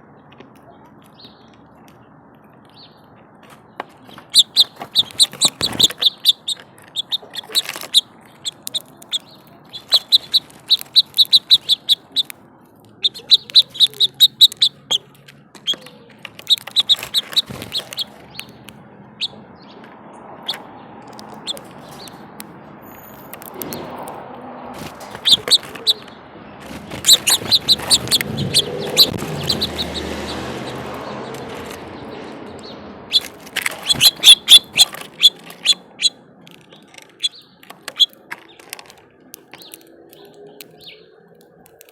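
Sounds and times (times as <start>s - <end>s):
small songbirds chirping: 0.0s - 24.1s, 24.8s - 41.9s
broad rushing noise: 20.3s - 36.0s.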